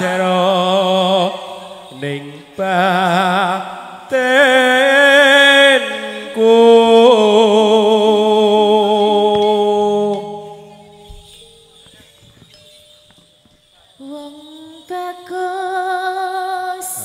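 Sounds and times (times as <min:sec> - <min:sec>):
person singing long wavering notes: 0:00.0 - 0:11.1.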